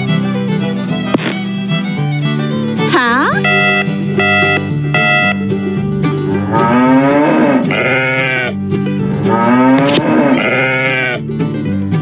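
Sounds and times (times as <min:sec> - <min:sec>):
background music: 0:00.0 - 0:12.0
livestock calling: 0:06.4 - 0:08.6, 0:09.2 - 0:11.3.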